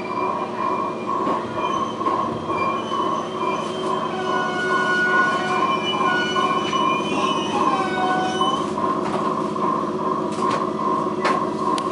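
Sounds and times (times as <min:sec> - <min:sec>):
high whining squealing tones: 0:00.0 - 0:08.8
train running rumble: 0:00.0 - 0:11.9.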